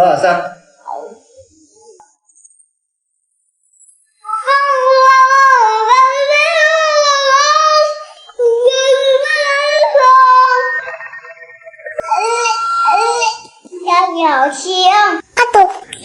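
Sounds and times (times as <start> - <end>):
girl's high-pitched wavering vocal: 4.3 - 11.3, 12.0 - 14.0.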